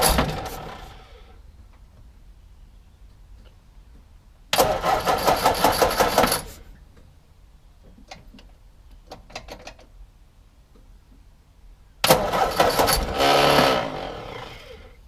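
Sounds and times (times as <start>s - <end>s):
car starter motor cranking: 4.5s - 6.5s, 12.0s - 15.0s.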